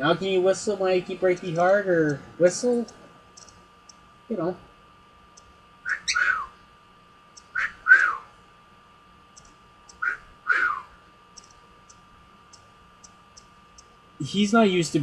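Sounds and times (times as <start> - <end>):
cockatiel calling: 5.9 - 6.6, 7.4 - 8.3, 9.9 - 10.9.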